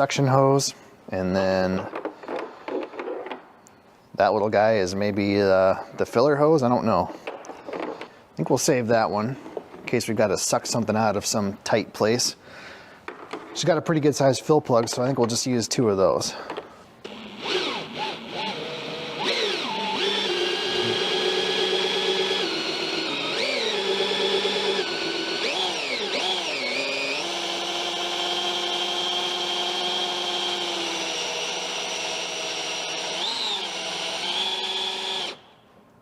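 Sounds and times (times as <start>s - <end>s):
drill motor whine: 17.0s - 35.5s.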